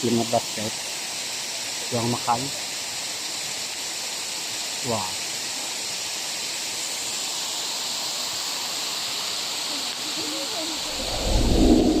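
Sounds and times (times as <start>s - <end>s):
waterfall rushing: 6.6s - 12.0s
low rumbling sound: 10.8s - 12.0s.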